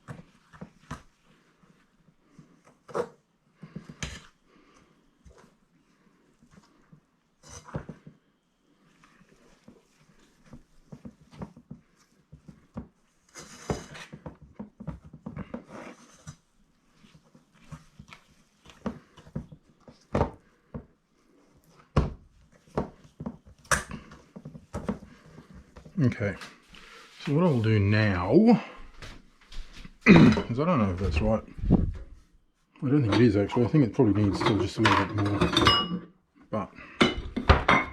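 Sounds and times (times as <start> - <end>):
rubbing in a bowl: 0.0 - 28.1.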